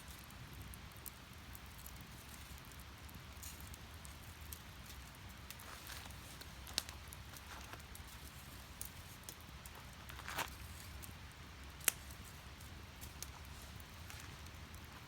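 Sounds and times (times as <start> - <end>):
fire rumbling: 0.0 - 15.0
firewood crackling pops: 0.2 - 15.0.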